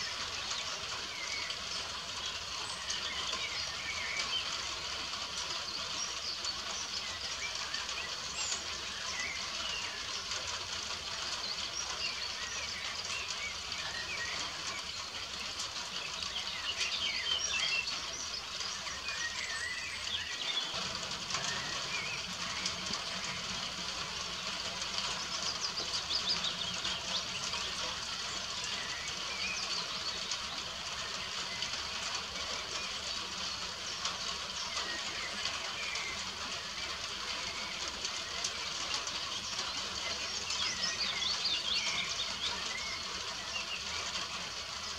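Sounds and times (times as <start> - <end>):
birds calling and chirping: 0.0 - 44.9
rain pattering: 0.0 - 44.9.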